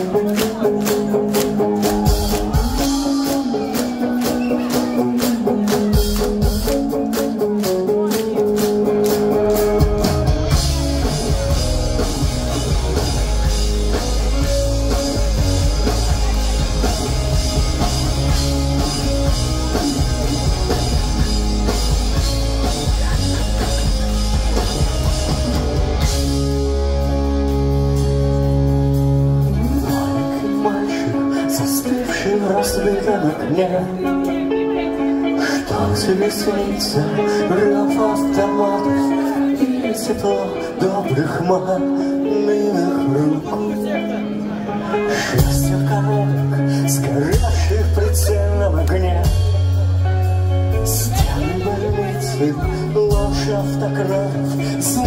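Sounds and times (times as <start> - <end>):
drum kit: 0.0 - 30.8, 47.2 - 55.0
bass guitar: 0.0 - 55.0
electric guitars: 0.0 - 55.0.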